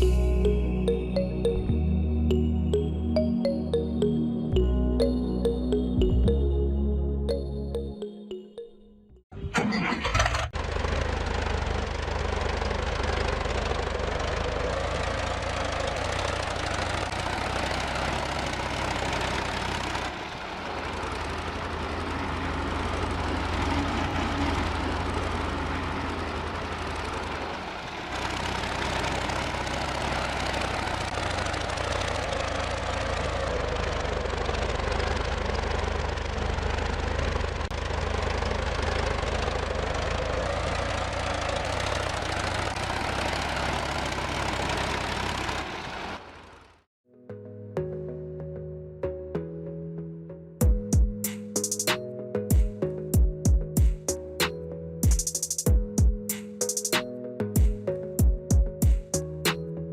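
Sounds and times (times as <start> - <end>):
tractor engine chugging: 9.4 - 46.8.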